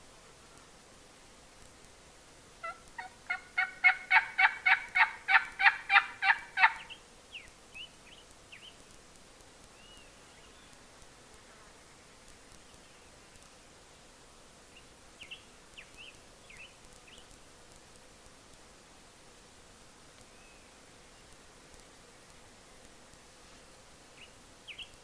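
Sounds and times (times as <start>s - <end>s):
turkey yelping: 2.6s - 6.8s
faint songbird chirps: 6.7s - 8.8s, 9.7s - 10.8s, 12.6s - 13.7s, 14.7s - 17.3s, 20.3s - 21.3s, 24.1s - 25.0s.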